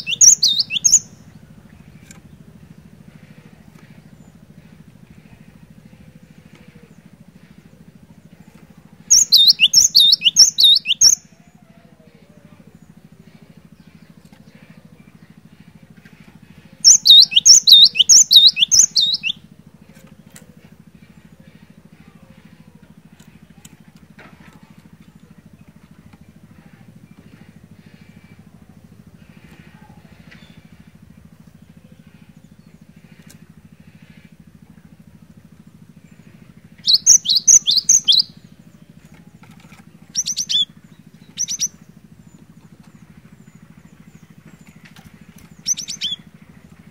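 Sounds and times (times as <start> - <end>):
bird singing whistled notes: 0.0 - 1.2, 9.1 - 11.2, 16.8 - 19.4, 36.8 - 38.5, 40.1 - 41.8, 45.5 - 46.3
steady low hum: 0.0 - 46.9.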